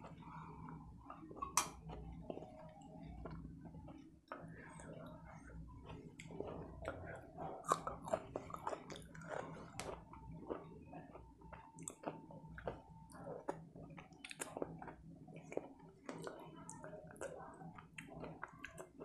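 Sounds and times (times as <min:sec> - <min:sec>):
person chewing food: 0:00.0 - 0:19.0
wet mouth clicks and smacks: 0:13.5 - 0:15.0.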